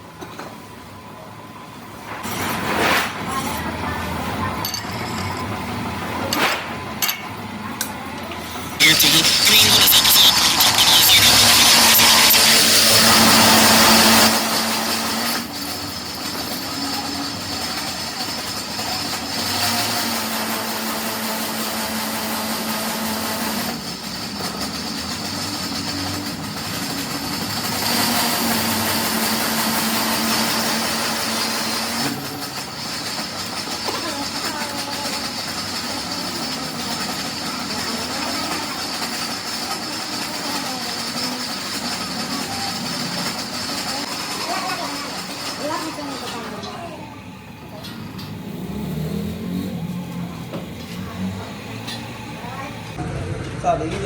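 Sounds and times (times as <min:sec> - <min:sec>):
heavy vehicles passing: 0:34.1 - 0:54.0.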